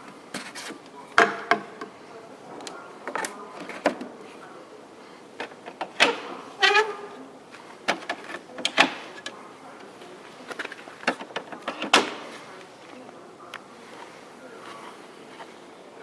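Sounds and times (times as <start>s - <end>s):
clicks and knocks of handled parts: 2.6s - 4.1s, 7.8s - 12.3s.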